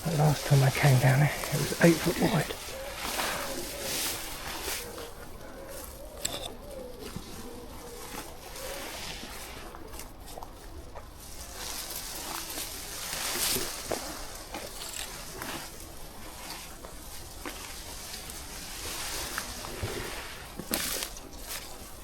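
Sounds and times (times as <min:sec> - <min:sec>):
footsteps through undergrowth: 0:00.0 - 0:22.0
twigs cracking underfoot: 0:20.6 - 0:22.0.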